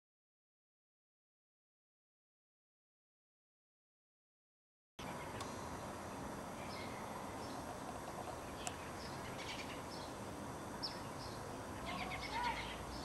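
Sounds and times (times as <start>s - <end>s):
outdoor background noise: 5.0s - 13.0s
high bird chirps: 6.6s - 7.7s, 10.8s - 13.0s.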